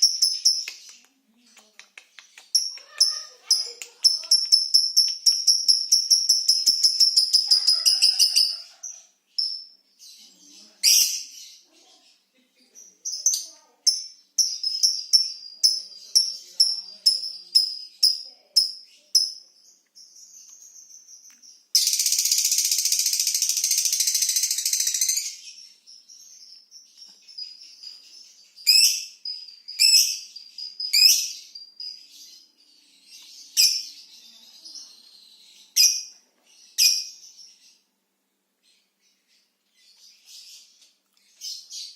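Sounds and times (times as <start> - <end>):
lovebird chirping: 0.0 - 41.9
lovebird rapid chatter: 1.6 - 9.0, 21.8 - 25.4.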